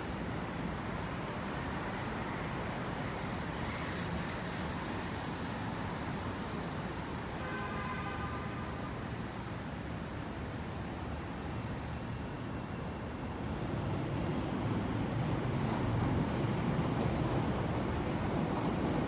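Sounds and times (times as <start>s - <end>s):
traffic noise: 0.0s - 19.0s
rail noise: 10.0s - 19.0s.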